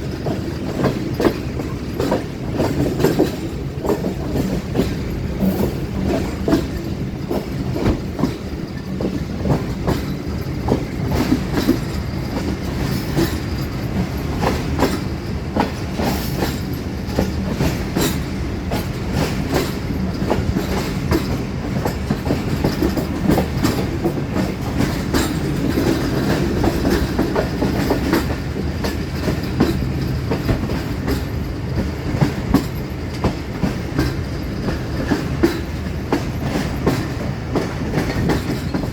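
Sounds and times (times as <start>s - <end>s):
train rumbling past: 0.0s - 38.9s
wheels clattering over rail joints: 0.0s - 38.9s.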